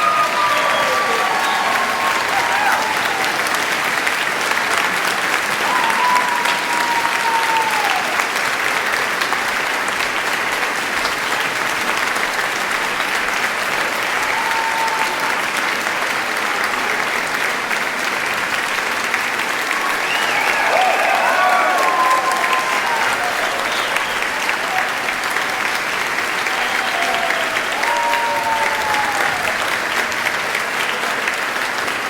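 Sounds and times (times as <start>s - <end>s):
audience applauding: 0.0s - 32.0s
whistles: 19.8s - 24.5s, 26.5s - 29.4s.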